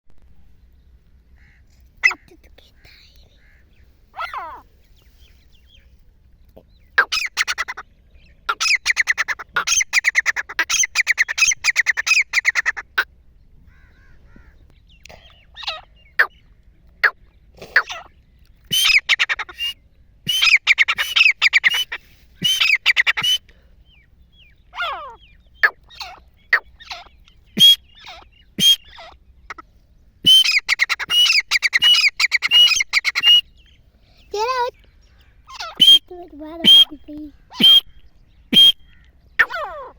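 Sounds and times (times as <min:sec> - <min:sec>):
francolin calling harsh notes: 0:18.7 - 0:23.4, 0:27.6 - 0:29.6, 0:30.3 - 0:33.4, 0:35.5 - 0:39.8.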